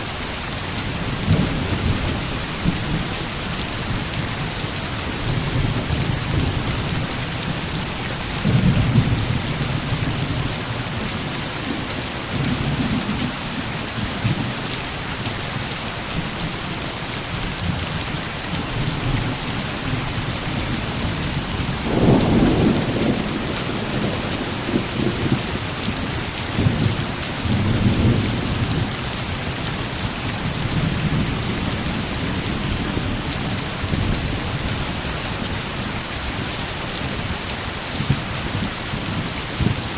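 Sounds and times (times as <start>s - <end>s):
heavy rain: 0.0s - 39.9s
thunder rumbling: 19.0s - 28.9s.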